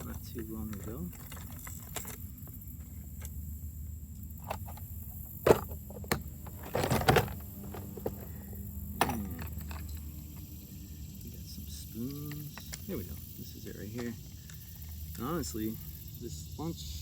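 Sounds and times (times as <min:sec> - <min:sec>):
small tackle clicking and rattling: 0:00.0 - 0:03.4, 0:04.1 - 0:10.6, 0:11.9 - 0:15.3
steady low rumble: 0:00.0 - 0:17.0.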